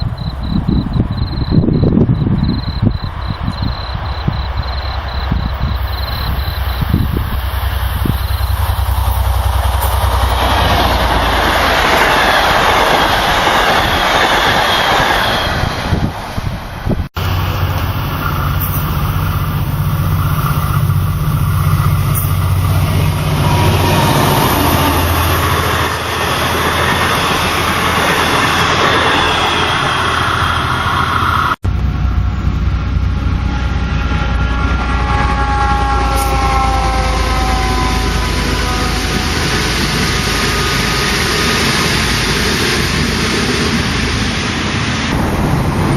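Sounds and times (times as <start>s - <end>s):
train wheels rushing on rail: 0.0s - 45.9s
whining tones sliding in pitch: 17.2s - 31.6s
diesel engine hum: 17.2s - 35.1s.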